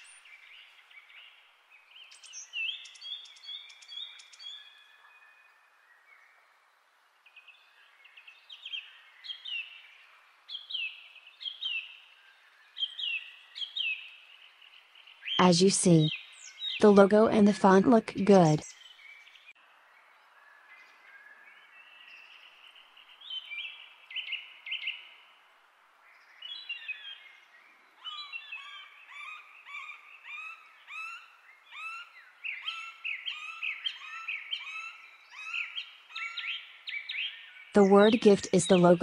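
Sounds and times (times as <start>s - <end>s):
small birds chirping: 0.0s - 5.3s.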